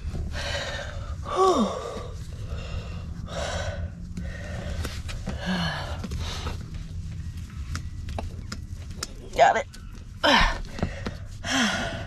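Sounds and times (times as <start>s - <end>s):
woman breathing hard: 0.0s - 6.8s, 10.2s - 12.0s.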